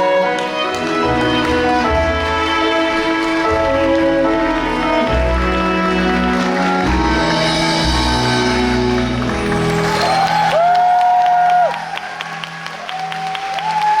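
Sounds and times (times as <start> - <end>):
live band playing sustained chords: 0.0 - 10.6.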